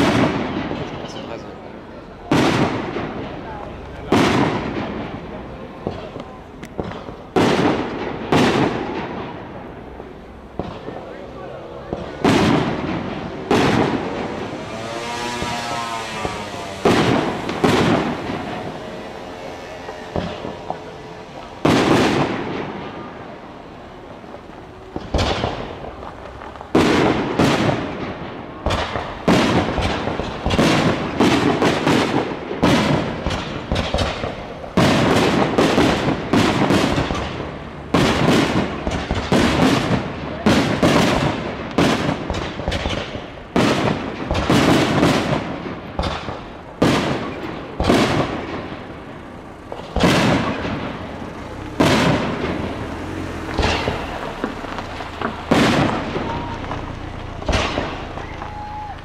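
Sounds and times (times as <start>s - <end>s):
firework shells bursting: 53.4s - 59.0s.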